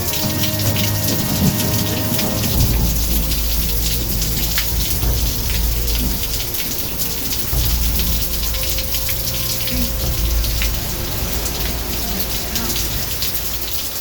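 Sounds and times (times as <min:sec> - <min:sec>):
deep rumble: 0:00.0 - 0:14.0
heavy rain: 0:00.0 - 0:14.0.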